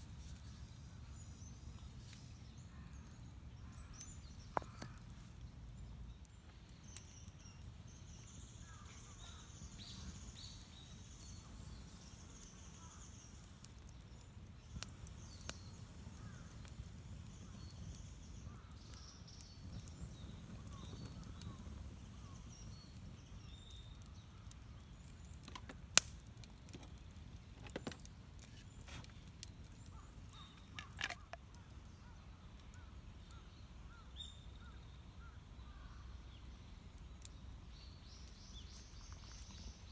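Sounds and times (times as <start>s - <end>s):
sharp clicks and pops: 4.0s - 7.3s, 9.2s - 31.5s
faint bird calls: 8.3s - 13.8s, 14.7s - 24.6s.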